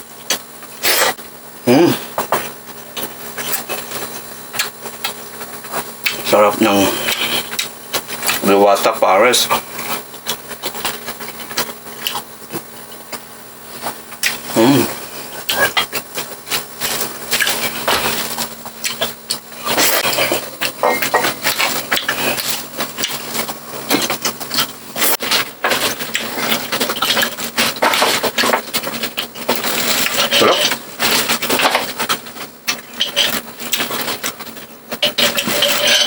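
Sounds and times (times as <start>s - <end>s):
chewing crispy food: 3.0s - 6.3s, 6.9s - 8.5s, 9.6s - 36.0s
cutlery clinking on plate: 20.0s - 22.2s.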